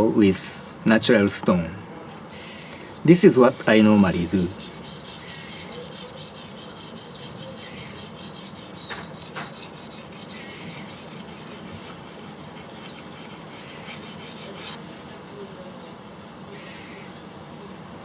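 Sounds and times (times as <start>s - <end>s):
knife scraping on whetstone: 2.1s - 14.8s.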